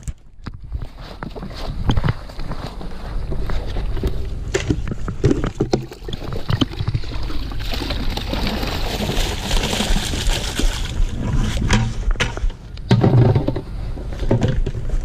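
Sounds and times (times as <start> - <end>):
water splashing into a stream: 5.2 - 11.2.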